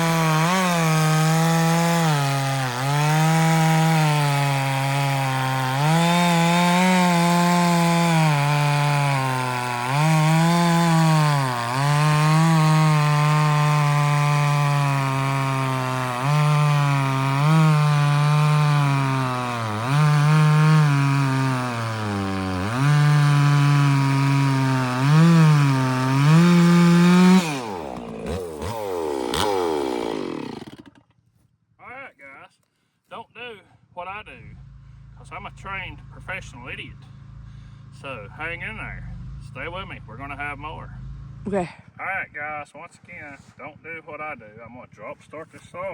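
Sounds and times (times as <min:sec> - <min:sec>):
chainsaw cutting log: 0:00.0 - 0:31.2.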